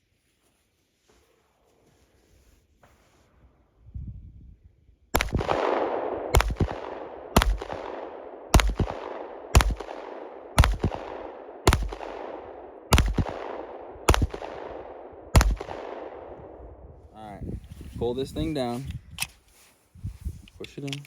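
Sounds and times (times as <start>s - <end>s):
pistol shots with echo: 5.2s - 16.8s.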